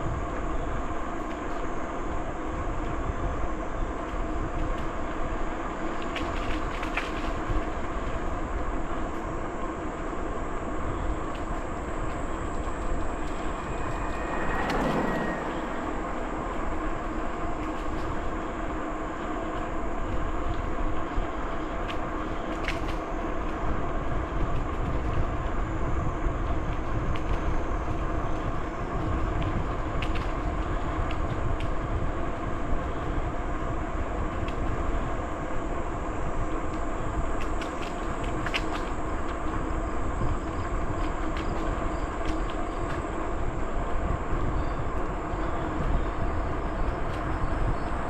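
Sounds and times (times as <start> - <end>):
rolling bicycle hum: 0.0 - 48.0
wind rumble on microphone: 0.0 - 48.0
falling whistle-like glide: 11.1 - 18.4.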